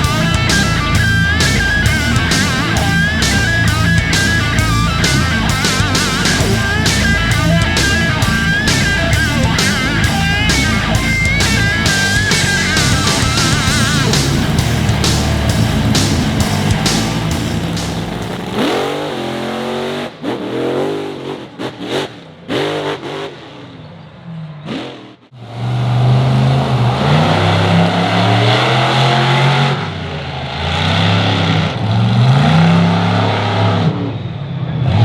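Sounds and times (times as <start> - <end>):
music track: 0.0 - 18.7
truck engine revving: 0.0 - 23.6.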